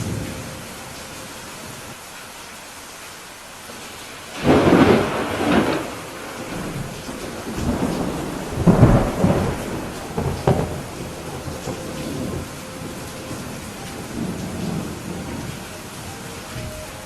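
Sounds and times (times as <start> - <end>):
steady rain: 0.0 - 17.0
thunder crashing and rumbling: 4.2 - 16.9.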